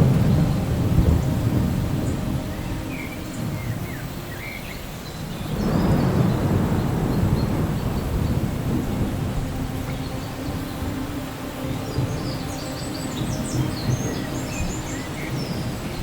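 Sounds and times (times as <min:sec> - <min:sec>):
rain hiss: 0:00.0 - 0:16.0
rumbling thunder: 0:00.0 - 0:16.0.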